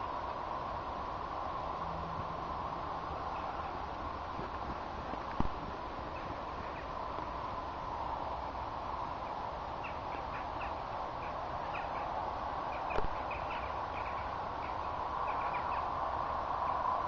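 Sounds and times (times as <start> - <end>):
steady background noise: 0.0 - 17.0
small birds chirping: 3.1 - 7.5, 8.8 - 17.0.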